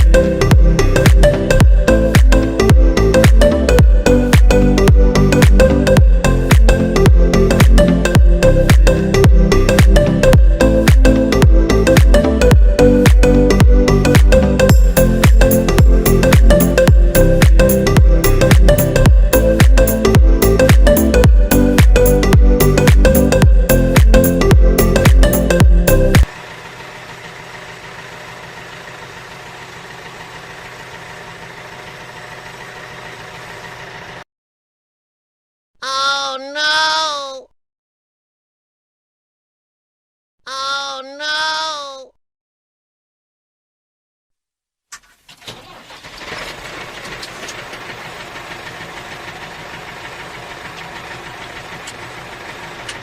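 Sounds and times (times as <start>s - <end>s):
mini tractor engine drone: 26.3s - 34.2s, 45.4s - 53.0s.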